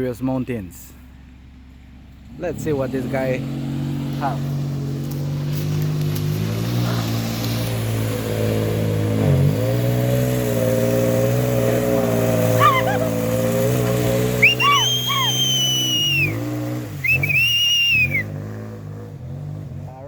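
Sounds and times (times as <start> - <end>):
truck engine under load: 0.9 - 19.9
shrill gliding whistle tones: 14.4 - 16.4, 17.0 - 18.3.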